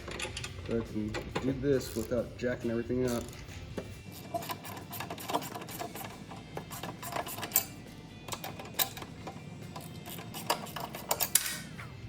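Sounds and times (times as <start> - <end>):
socket ratchet clicking: 4.1 - 11.7.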